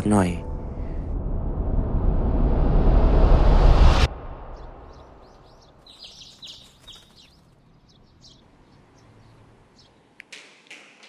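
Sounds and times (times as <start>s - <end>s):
small birds chirping: 4.6s - 10.8s.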